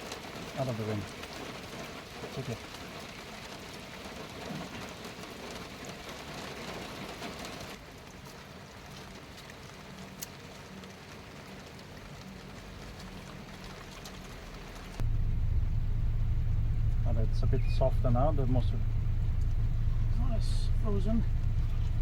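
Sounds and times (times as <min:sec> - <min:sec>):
rain falling: 0:00.0 - 0:22.0
faint low hum: 0:15.0 - 0:22.0.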